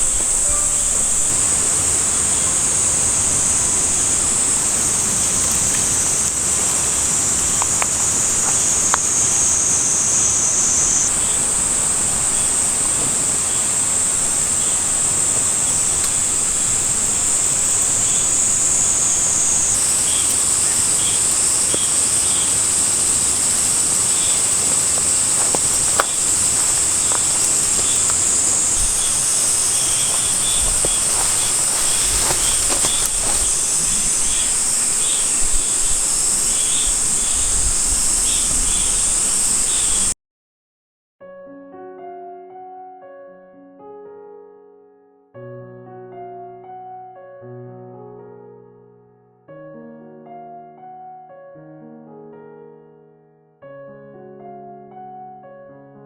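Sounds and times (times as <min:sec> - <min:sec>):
high-pitched insect chorus: 0:00.0 - 0:40.2
faint clicks: 0:19.8 - 0:36.6.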